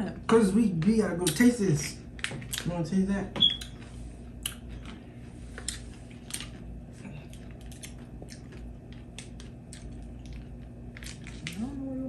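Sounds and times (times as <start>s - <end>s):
pickle being chewed: 3.5s - 11.8s.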